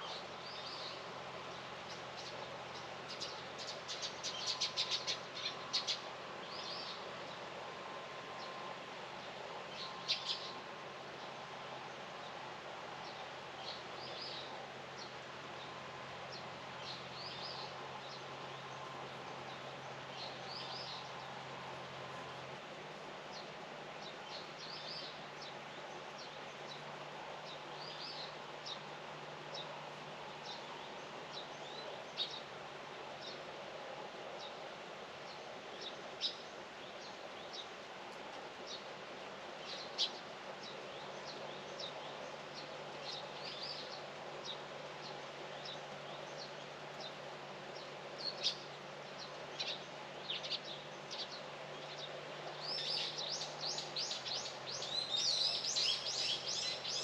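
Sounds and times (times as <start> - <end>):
small birds chirping: 0.0 - 7.1, 39.6 - 57.0
outdoor background hiss: 0.0 - 57.0.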